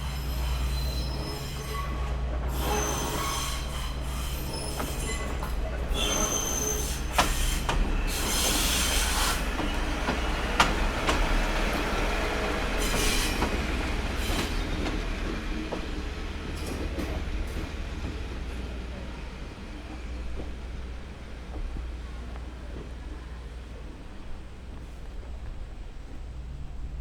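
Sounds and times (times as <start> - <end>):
high wheel squeal: 0.0 - 10.0, 12.6 - 14.8
low train rumble: 0.0 - 27.0.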